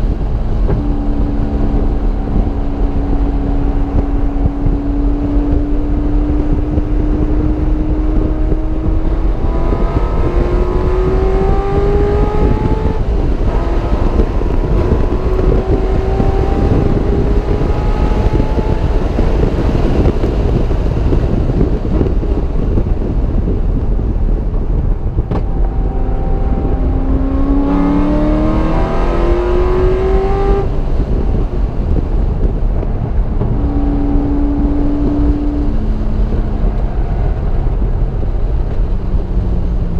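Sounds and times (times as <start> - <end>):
car engine accelerating through gears: 0.0 - 39.9
wind and road noise: 0.0 - 39.9.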